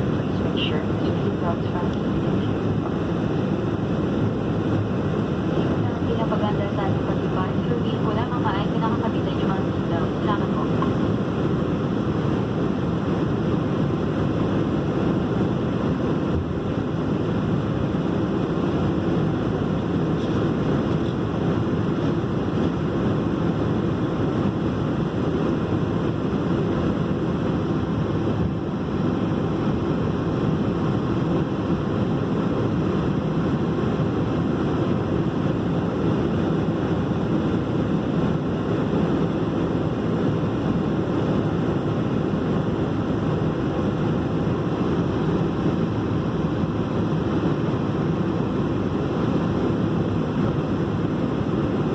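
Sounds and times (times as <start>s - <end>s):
airliner cabin engine rumble: 0.0s - 51.9s.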